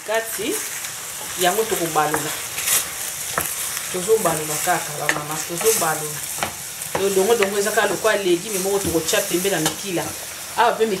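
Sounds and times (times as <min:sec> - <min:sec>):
vegetables sizzling in oil: 0:00.0 - 0:11.0
wooden spoon scraping a pan: 0:00.5 - 0:10.3
person speaking: 0:01.4 - 0:02.4.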